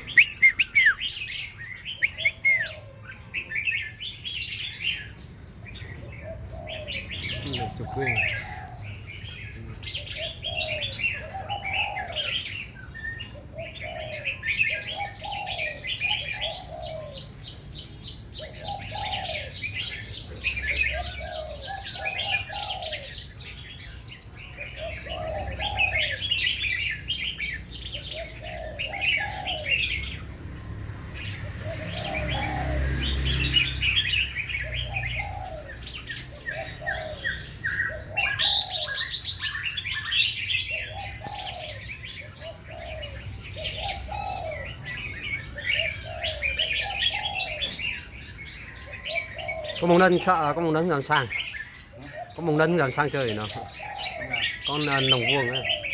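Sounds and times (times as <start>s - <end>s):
long fast bird trill: 0.0s - 2.8s
birds chirping and warbling: 0.0s - 55.9s.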